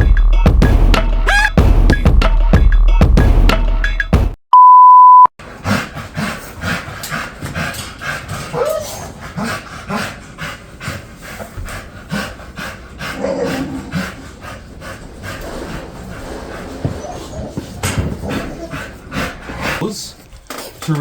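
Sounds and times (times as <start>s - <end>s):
loud one-pitch beep: 4.5s - 5.3s
dog panting rapidly: 5.4s - 20.1s.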